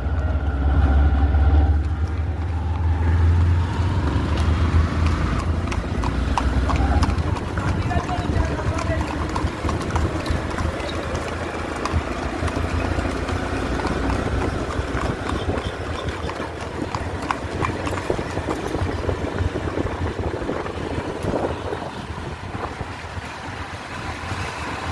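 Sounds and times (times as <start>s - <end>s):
wind noise on microphone: 0.0s - 24.9s
motorcycle engine running: 4.4s - 23.5s.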